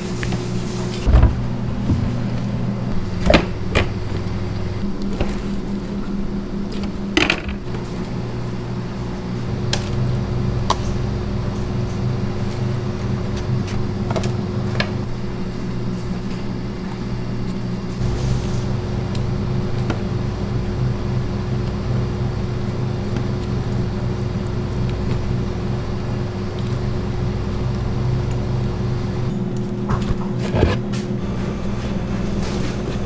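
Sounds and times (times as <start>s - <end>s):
mechanical hum: 0.0s - 33.0s.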